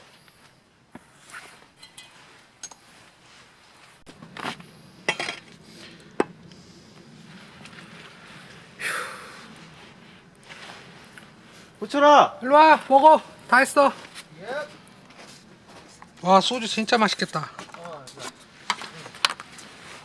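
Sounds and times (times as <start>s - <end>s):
dishes and utensils clinking: 1.8s - 2.8s, 5.1s - 5.6s
sharp metal clanks: 1.8s - 2.8s.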